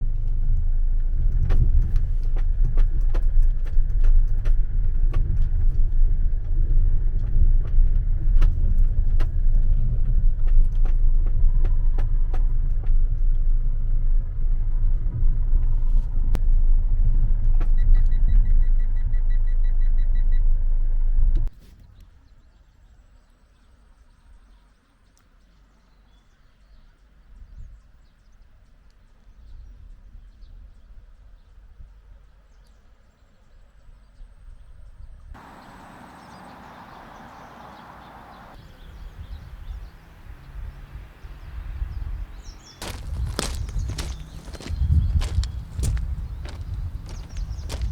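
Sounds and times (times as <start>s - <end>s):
minivan engine rumble: 0.0s - 21.5s, 35.4s - 47.9s.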